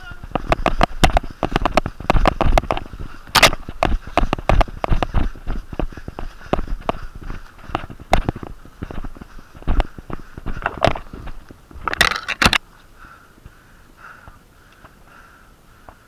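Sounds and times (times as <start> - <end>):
loud rustling scuffle: 0.0 - 12.6
footsteps on rough ground: 0.0 - 13.6
heavy nasal breathing: 0.2 - 11.4, 12.9 - 16.0.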